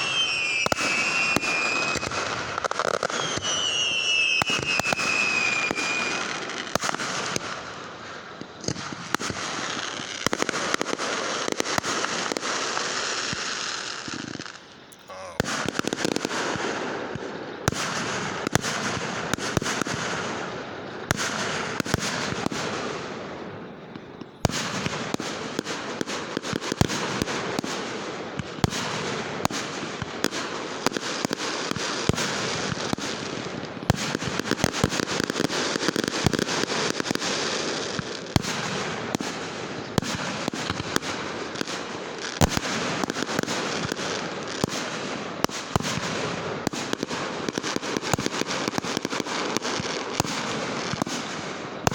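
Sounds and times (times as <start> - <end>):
fireworks crackling and banging: 0.0 - 51.9.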